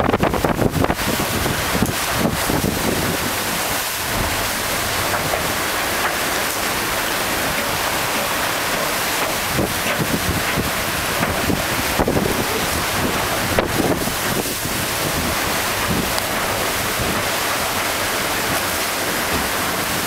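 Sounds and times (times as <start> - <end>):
rushing hiss of water: 0.0 - 20.0
wind buffeting the microphone: 0.0 - 20.0.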